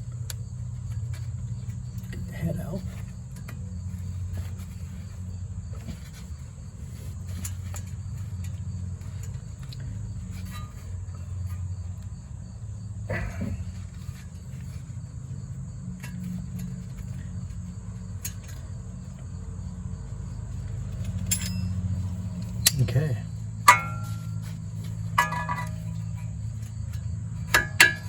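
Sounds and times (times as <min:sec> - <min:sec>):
crickets trilling: 0:00.0 - 0:28.0
low hum: 0:00.0 - 0:28.0
clatter: 0:13.0 - 0:28.0
hand tools clicking: 0:20.9 - 0:26.1.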